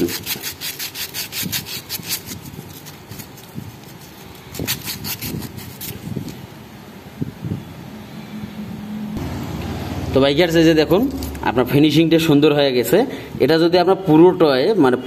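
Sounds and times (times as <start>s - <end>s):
sandpaper scratching on metal: 0.0s - 6.2s.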